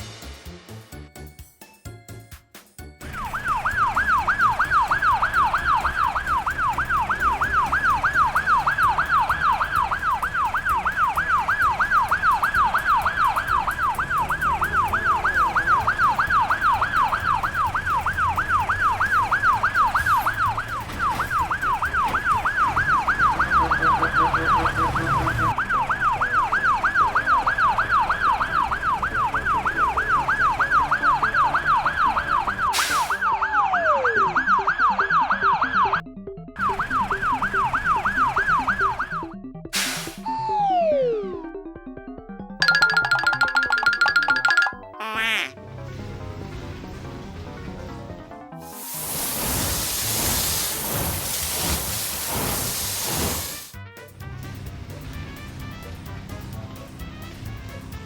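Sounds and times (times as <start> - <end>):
ambulance siren yelping: 3.1 - 39.4, 40.3 - 41.6, 42.6 - 45.5.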